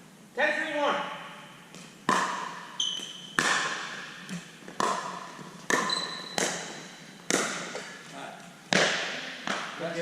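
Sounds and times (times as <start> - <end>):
ball bouncing on court: 1.7 - 8.0, 8.7 - 9.9
shoe squeak: 2.7 - 3.4, 5.8 - 7.1
paddles striking plastic ball: 4.7 - 7.9.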